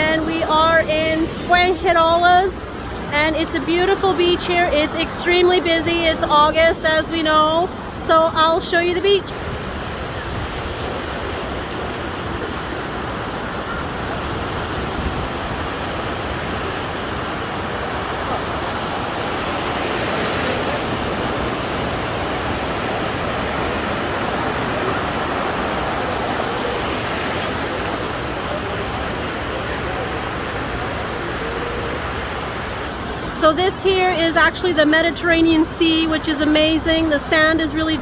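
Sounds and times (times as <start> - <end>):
crowd voices: 0.0 - 9.3, 23.6 - 38.0
surf washing: 0.0 - 38.0.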